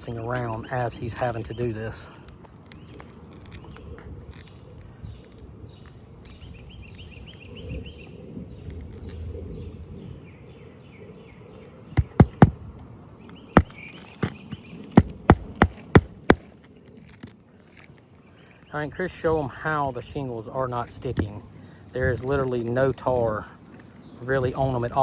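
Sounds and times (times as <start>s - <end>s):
hammer driving nails: 12.0s - 12.6s.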